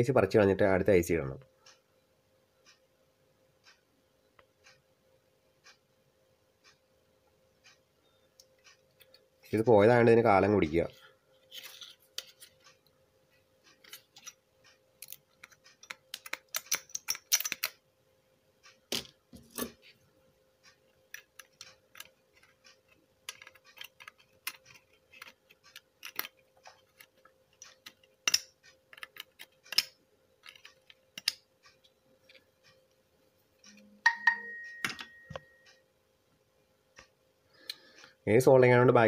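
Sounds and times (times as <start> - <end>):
faint steady hum: 0.0 - 39.0
soldering tools clicking and scraping: 10.9 - 17.8, 18.6 - 20.0, 20.6 - 33.0.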